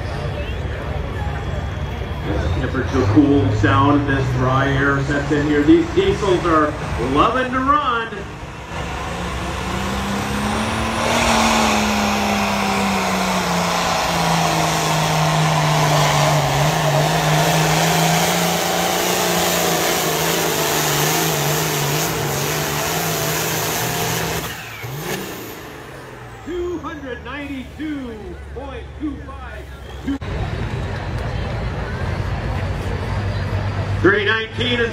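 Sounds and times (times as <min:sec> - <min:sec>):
diesel tractor engine at full throttle: 0:00.0 - 0:34.9.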